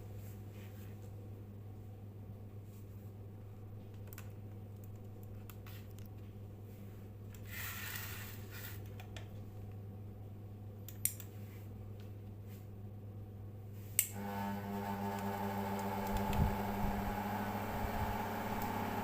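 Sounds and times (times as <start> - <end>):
steady low hum: 9.2 - 19.0
small clicks: 15.2 - 16.5.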